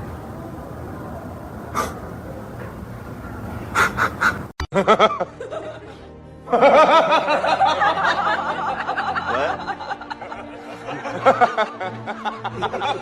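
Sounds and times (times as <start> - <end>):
hearty laughter: 4.7 - 13.0.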